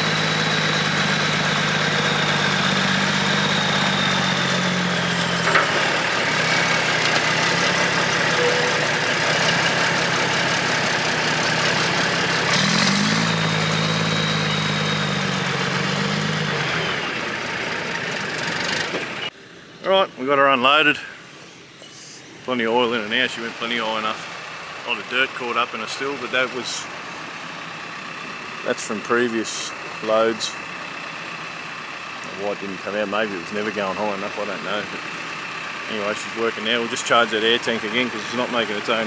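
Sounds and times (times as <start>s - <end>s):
diesel truck engine revving: 0.0s - 39.0s
high engine whine: 0.0s - 39.0s.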